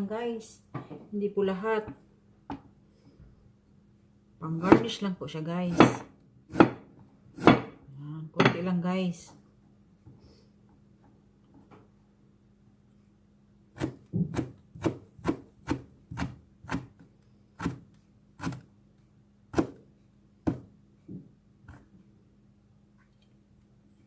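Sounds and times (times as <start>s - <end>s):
knife chopping on cutting board: 4.6s - 4.9s, 5.7s - 7.8s, 13.8s - 17.0s, 19.5s - 19.8s, 20.4s - 20.7s.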